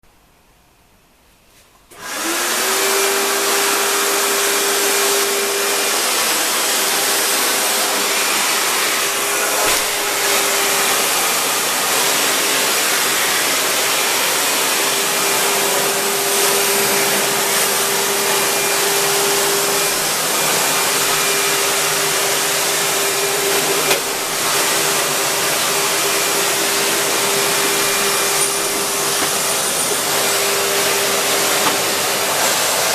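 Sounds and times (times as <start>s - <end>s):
vacuum cleaner running: 1.9s - 32.9s.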